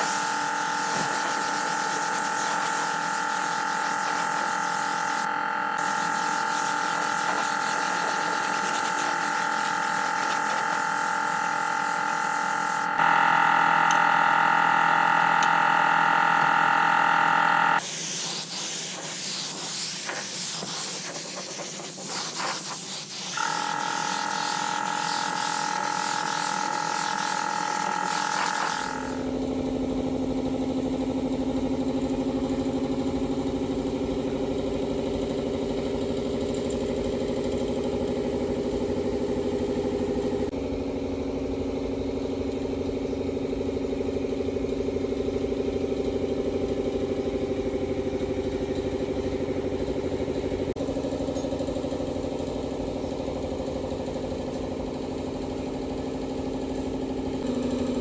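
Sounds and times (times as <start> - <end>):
hissing spray: 0.0 - 12.9, 17.8 - 23.4.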